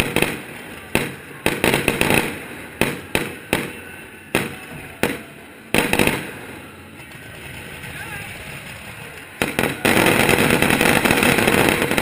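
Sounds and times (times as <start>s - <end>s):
fireworks bangs with echo: 0.0s - 12.0s.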